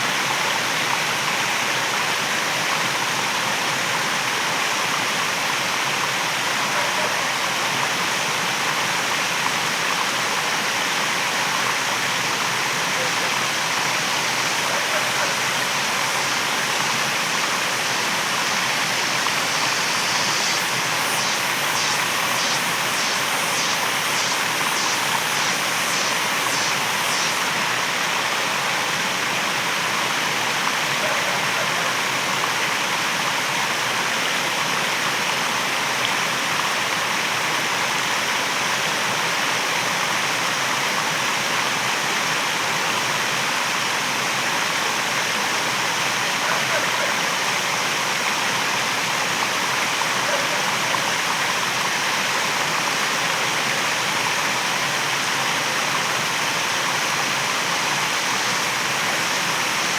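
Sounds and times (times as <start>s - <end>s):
waterfall rushing: 11.3s - 33.1s
high pulsing sound: 14.0s - 27.6s.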